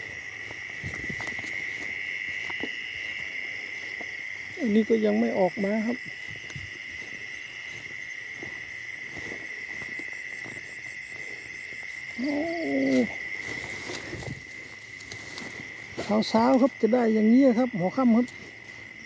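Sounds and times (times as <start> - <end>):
crickets trilling: 0.0 - 19.0
low hoot-like call: 12.1 - 13.2.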